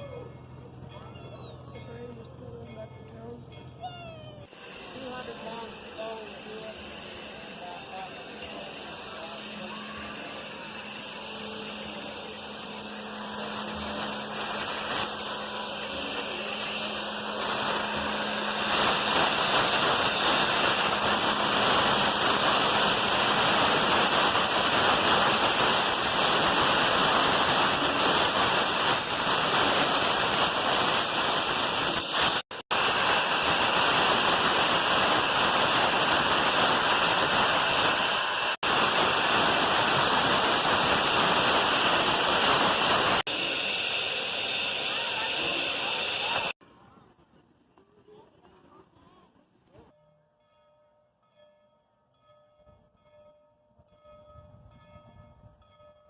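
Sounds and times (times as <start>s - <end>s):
steam locomotive hissing steam: 4.5s - 46.6s.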